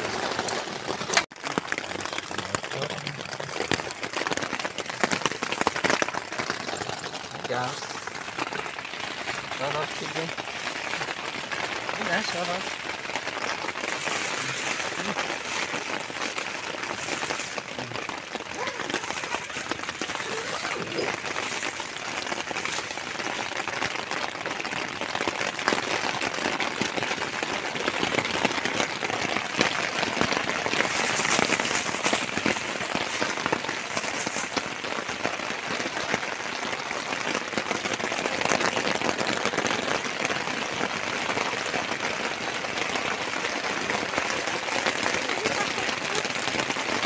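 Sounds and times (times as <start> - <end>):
heavy rain on tent: 0.0 - 47.0.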